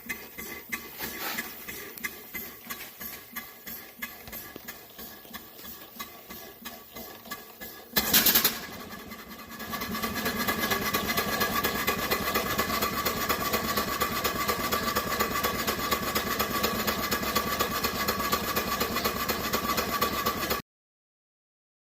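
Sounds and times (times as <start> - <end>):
steam hissing: 0.0 - 8.8
steam engine beat: 0.0 - 20.6.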